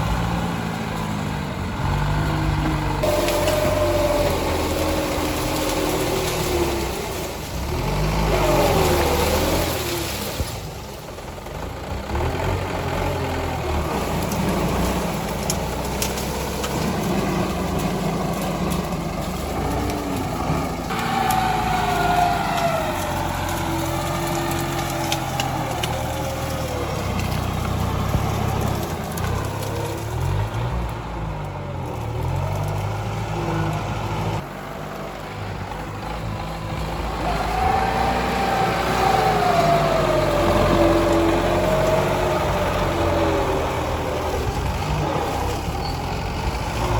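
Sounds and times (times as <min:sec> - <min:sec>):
tractor diesel engine running: 0:00.0 - 0:46.9
sharp cracks and clicks: 0:14.1 - 0:20.4, 0:22.4 - 0:32.9.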